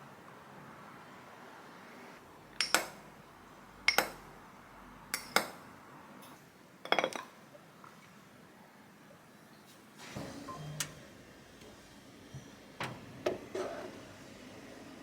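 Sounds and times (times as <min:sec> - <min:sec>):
utensils clinking against dishes: 0:06.8 - 0:07.3.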